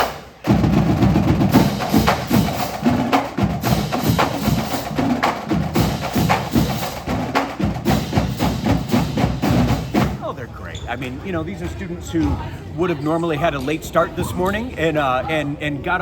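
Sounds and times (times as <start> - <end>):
marching drumline playing cadence: 0.0 - 10.3.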